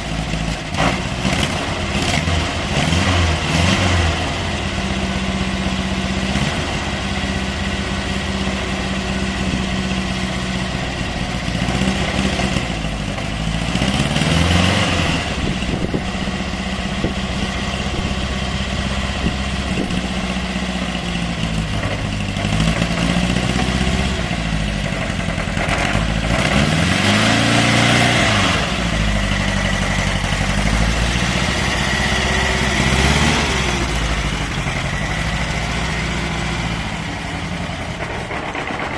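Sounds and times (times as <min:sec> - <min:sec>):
air-cooled car engine revving: 0:00.8 - 0:05.0, 0:13.6 - 0:20.4, 0:25.6 - 0:38.9.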